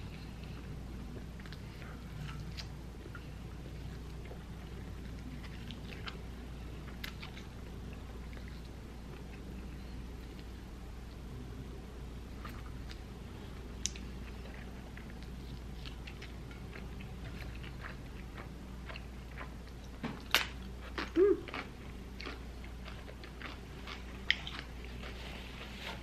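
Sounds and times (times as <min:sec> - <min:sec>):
person chewing and biting: 0:13.8 - 0:25.7.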